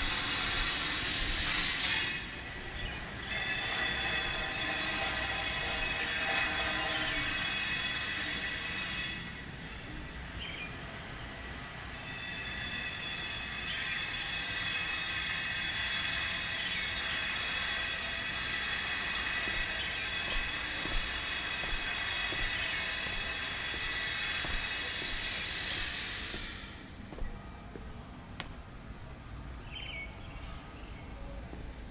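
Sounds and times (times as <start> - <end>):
power tool grinding stone: 17.0 - 26.8.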